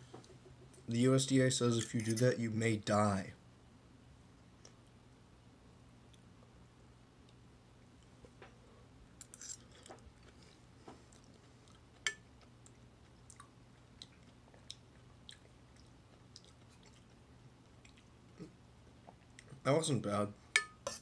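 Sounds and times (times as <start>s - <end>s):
faint low hum: 0.0s - 21.0s
person chewing noodles: 9.2s - 19.5s.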